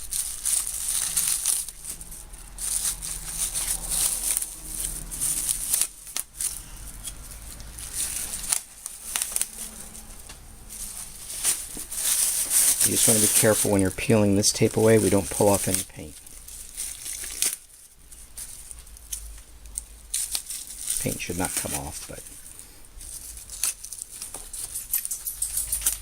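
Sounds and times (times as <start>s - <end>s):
masking tape tearing and peeling: 0.0s - 26.0s
plastic bag crinkling: 0.0s - 26.0s.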